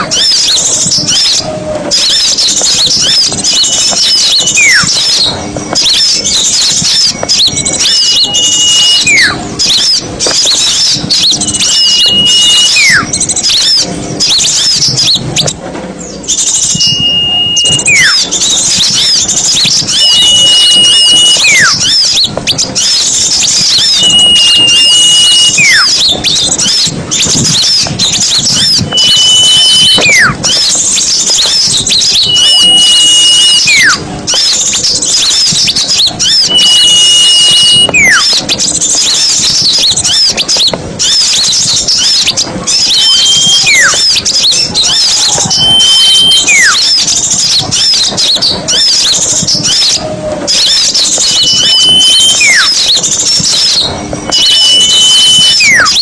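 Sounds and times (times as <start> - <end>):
songbirds chattering: 0.0 - 56.0
whistled note sliding down: 16.6 - 19.0, 51.4 - 52.8.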